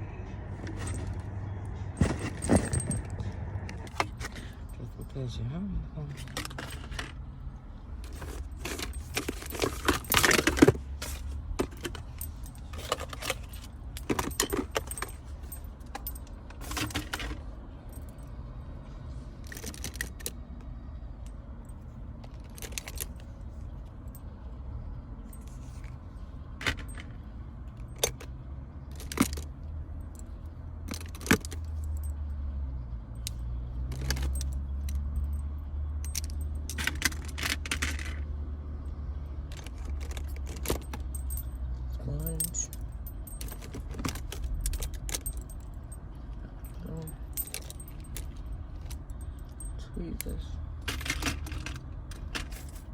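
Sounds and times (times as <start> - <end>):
small hard objects clinking: 8.1 - 16.0.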